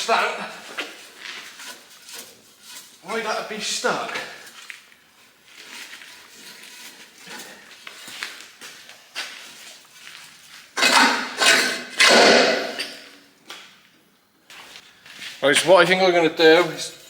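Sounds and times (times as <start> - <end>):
harsh metal scraping: 0.0 - 4.6, 5.2 - 8.3, 10.0 - 13.2.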